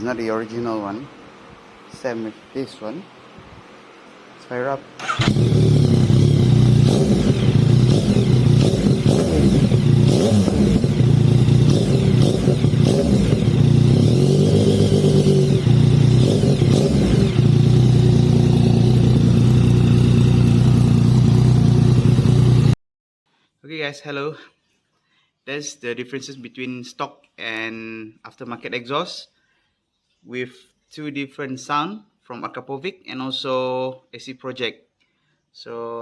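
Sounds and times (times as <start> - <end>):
engine throttle blips: 5.0 - 22.8
motorcycle engine idling: 5.0 - 22.8.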